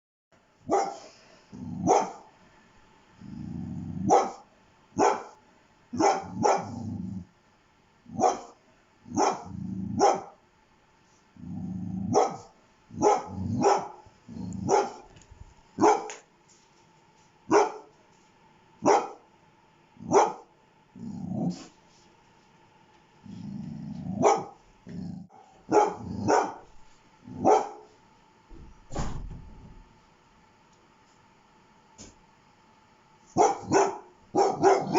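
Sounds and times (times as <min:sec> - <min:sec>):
dog barking: 0:00.6 - 0:01.1, 0:01.8 - 0:02.3, 0:04.0 - 0:05.4, 0:06.0 - 0:06.9, 0:08.1 - 0:10.4, 0:12.1 - 0:14.0, 0:14.6 - 0:15.1, 0:15.8 - 0:16.2, 0:17.5 - 0:17.9, 0:18.8 - 0:19.2, 0:20.0 - 0:20.5, 0:24.2 - 0:24.6, 0:25.3 - 0:26.7, 0:27.3 - 0:27.9, 0:33.4 - 0:34.9
dog growling: 0:01.5 - 0:02.1, 0:03.2 - 0:04.4, 0:06.2 - 0:07.3, 0:09.1 - 0:10.2, 0:11.4 - 0:12.4, 0:13.0 - 0:15.1, 0:20.9 - 0:21.7, 0:23.2 - 0:26.6.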